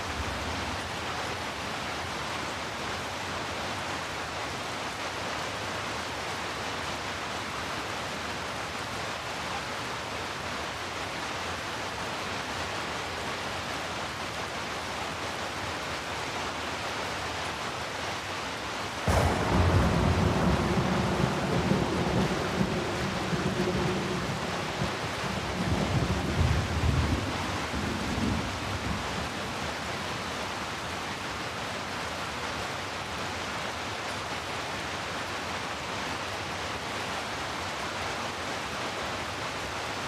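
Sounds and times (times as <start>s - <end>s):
steady rain falling: 0.0s - 40.0s
thunder crack and rumble: 19.1s - 29.8s.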